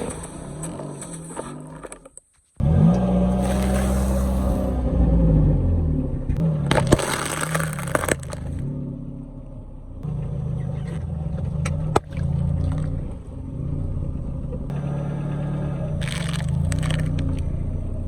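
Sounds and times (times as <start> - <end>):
car engine running: 2.6 - 18.0
crackling: 3.3 - 4.8, 6.7 - 8.6, 16.0 - 17.4.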